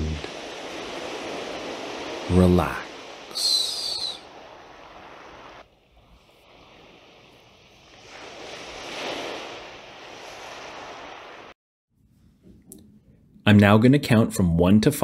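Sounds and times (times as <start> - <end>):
ocean surf washing: 0.0 - 11.6.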